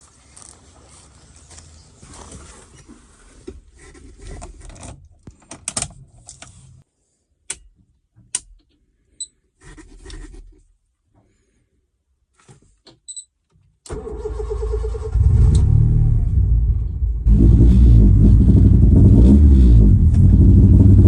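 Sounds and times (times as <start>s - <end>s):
rustling handling noise: 0.0s - 6.8s.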